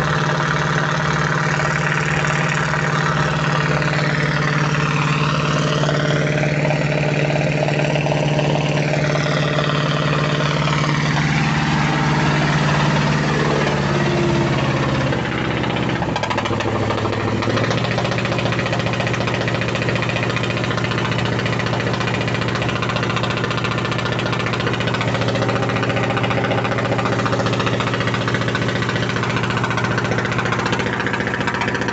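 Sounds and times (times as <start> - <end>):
boat diesel engine running: 0.0 - 31.9.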